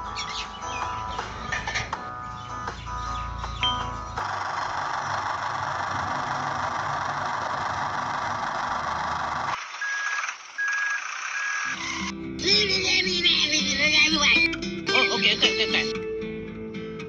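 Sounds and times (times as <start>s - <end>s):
machine engine noise: 3.2s - 12.1s.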